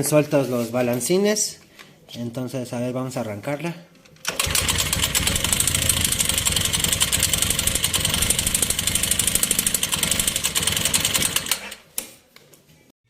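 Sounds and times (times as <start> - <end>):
motorcycle engine knocking: 4.6 - 11.5.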